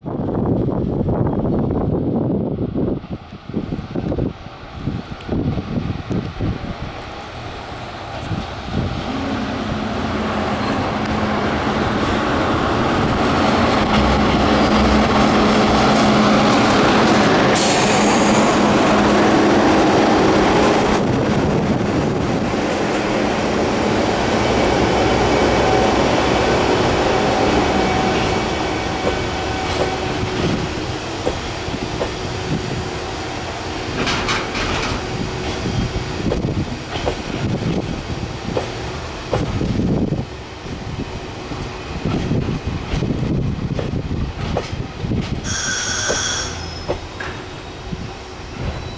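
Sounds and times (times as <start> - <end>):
electric locomotive running: 3.6 - 48.9
high squeal: 45.4 - 48.9.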